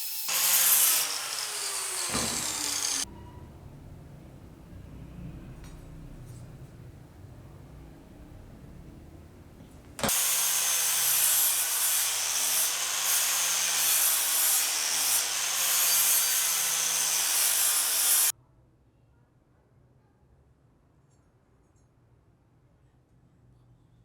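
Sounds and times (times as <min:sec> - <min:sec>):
sanding on a steel blade: 0:00.0 - 0:03.0, 0:10.1 - 0:18.3.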